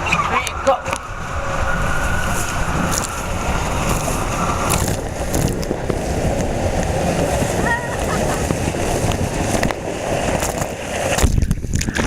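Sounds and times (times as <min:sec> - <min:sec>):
faint tone: 0:00.0 - 0:05.8
mat sliding down water slide: 0:03.9 - 0:12.0.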